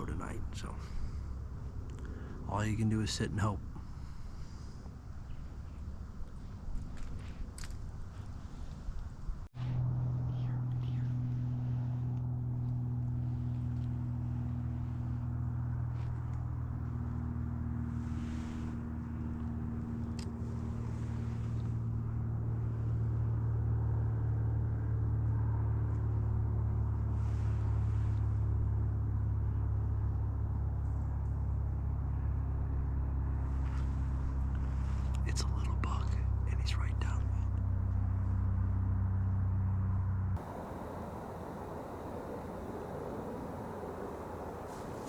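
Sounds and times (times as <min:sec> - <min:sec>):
distant vehicle engine droning: 0:40.4 - 0:45.0.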